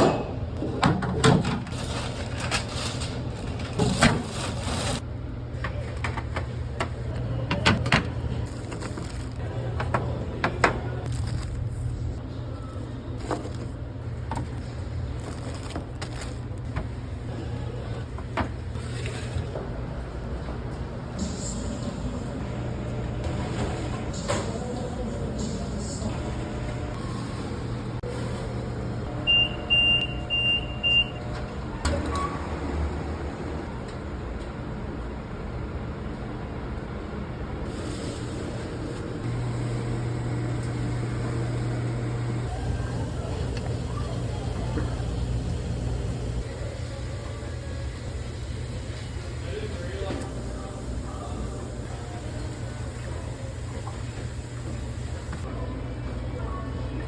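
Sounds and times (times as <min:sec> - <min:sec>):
low machine hum: 0:01.6 - 0:57.0
appliance beeps: 0:29.2 - 0:31.4.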